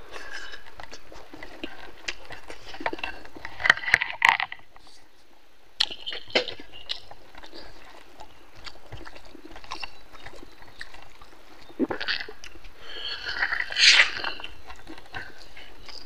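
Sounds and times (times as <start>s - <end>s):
chewing with lip smacks: 0.0s - 16.0s
mouth clicks: 5.8s - 16.0s.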